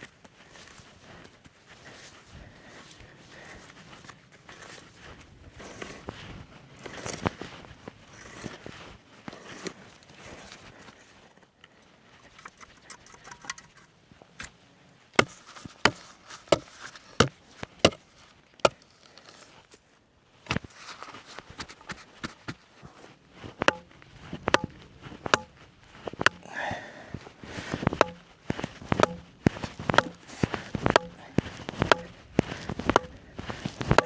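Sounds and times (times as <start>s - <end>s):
sharp knocks: 23.6s - 23.9s, 24.5s - 24.7s, 28.0s - 28.2s, 28.9s - 30.2s, 30.8s - 31.2s, 31.8s - 32.1s, 32.8s - 33.1s.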